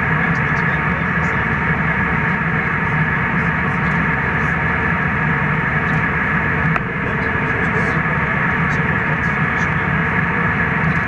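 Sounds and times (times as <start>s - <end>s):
jet airliner cabin noise: 0.0s - 11.0s
low hum: 0.0s - 11.0s.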